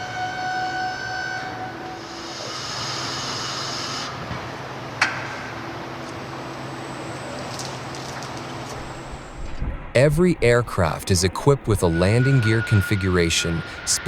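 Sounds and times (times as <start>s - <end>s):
mechanical hum: 0.0s - 14.0s
hiss: 2.0s - 4.2s
high whine: 5.4s - 14.0s.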